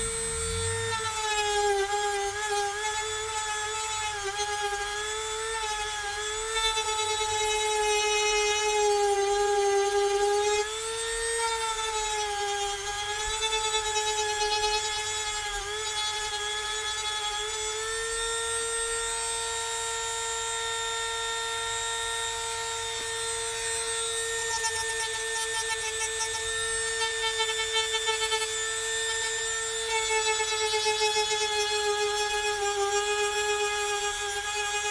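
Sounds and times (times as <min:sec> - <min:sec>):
rotary tool grinding: 0:00.0 - 0:02.6.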